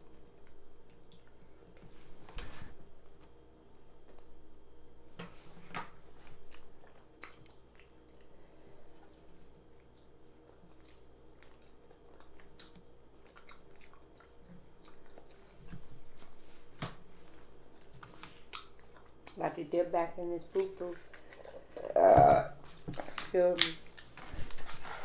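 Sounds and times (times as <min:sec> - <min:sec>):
person chewing food: 0:05.9 - 0:16.5, 0:17.2 - 0:19.4, 0:20.6 - 0:23.1.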